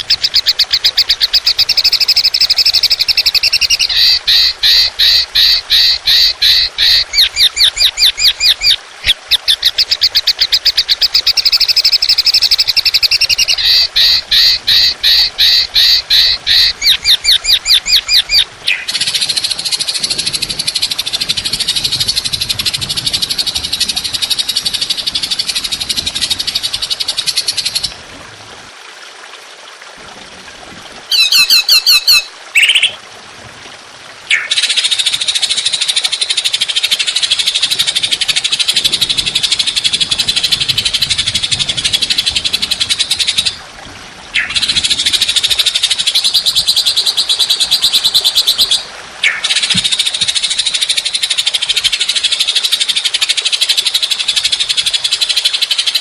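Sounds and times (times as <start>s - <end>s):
songbird rattling trills: 0.0s - 27.9s
bird whistled notes: 31.1s - 33.0s.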